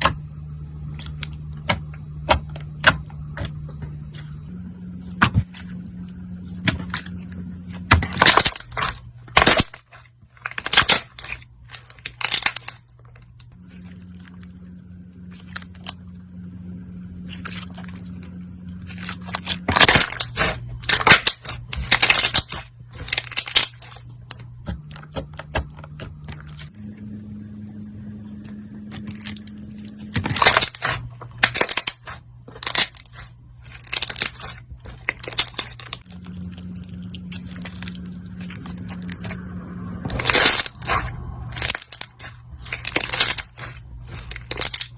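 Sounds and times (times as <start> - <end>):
slime crackling and popping: 6.7 - 14.6, 18.8 - 26.7, 28.9 - 39.5, 40.1 - 44.9.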